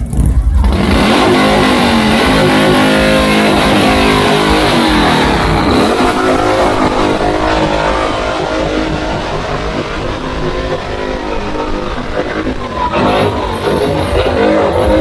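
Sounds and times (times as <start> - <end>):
motorcycle engine revving: 0.0 - 15.0
music playing: 0.0 - 15.0.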